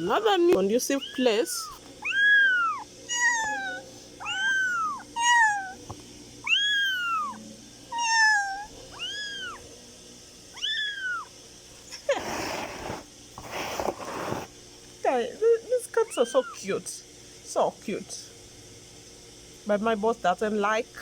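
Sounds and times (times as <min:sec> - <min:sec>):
kittens mewing: 0:00.0 - 0:09.6, 0:10.5 - 0:11.3, 0:11.9 - 0:13.0, 0:16.0 - 0:16.7.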